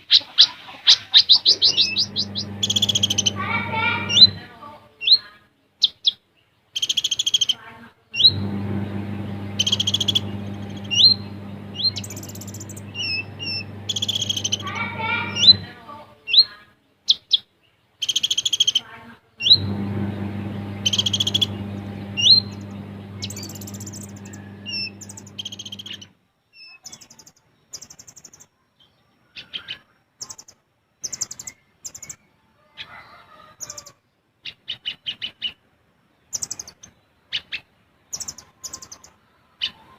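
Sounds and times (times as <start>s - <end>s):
sunbird singing: 1.3s - 3.3s, 9.6s - 11.2s, 11.8s - 14.6s, 20.8s - 21.6s, 23.2s - 26.0s
steady low hum: 1.7s - 4.4s, 8.2s - 15.9s, 19.4s - 26.1s.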